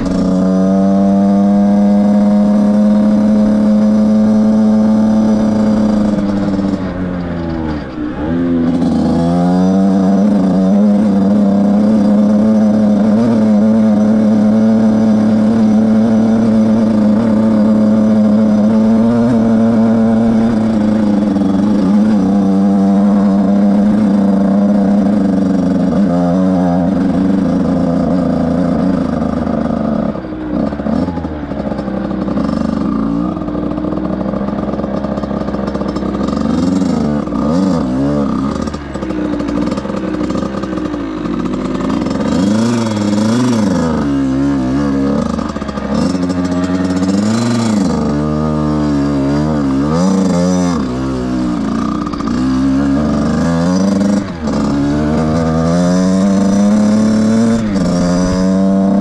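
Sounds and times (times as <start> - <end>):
two-stroke motorbike engine revving: 0.0 - 59.0.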